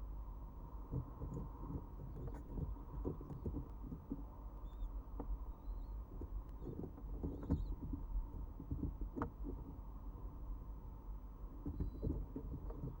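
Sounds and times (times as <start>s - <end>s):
birds scratching in nest box: 6.2s - 9.8s, 11.6s - 13.0s.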